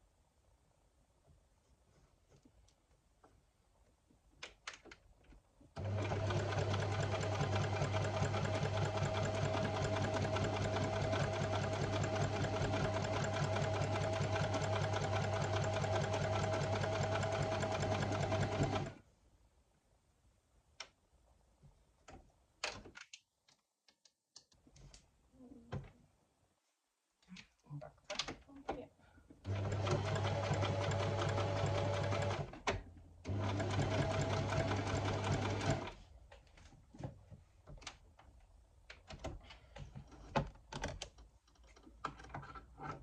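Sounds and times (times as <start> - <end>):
sewing machine stitching: 5.8 - 19.0, 29.4 - 36.0.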